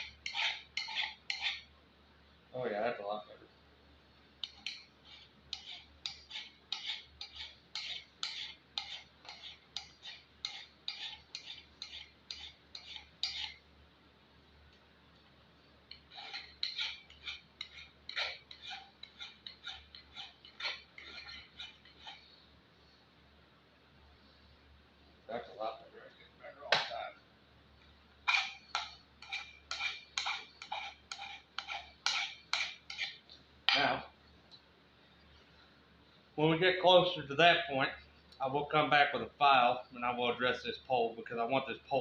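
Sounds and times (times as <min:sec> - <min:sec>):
file rasping on steel: 0:00.0 - 0:01.7, 0:04.4 - 0:13.6, 0:15.9 - 0:22.3, 0:28.3 - 0:33.2.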